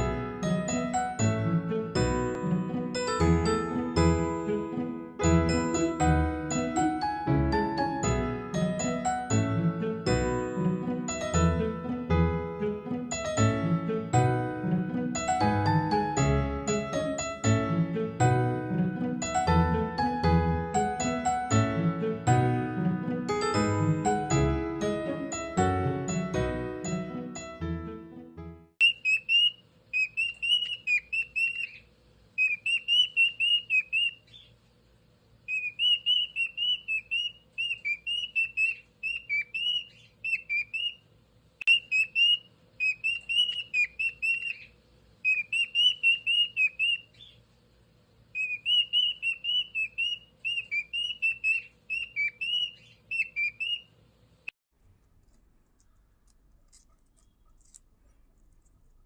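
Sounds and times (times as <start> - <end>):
cockatiel whistling: 28.8 - 31.8, 32.4 - 34.5, 35.5 - 41.0, 41.6 - 47.4, 48.4 - 53.9.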